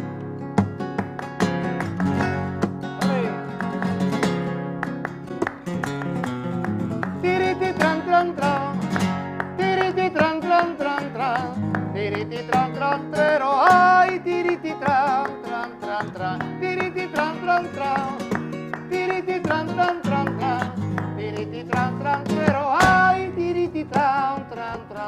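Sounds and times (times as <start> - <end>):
flamenco acoustic guitar: 0.0 - 25.0
person singing ornamented lines: 7.2 - 8.9, 9.6 - 18.3, 18.9 - 25.0.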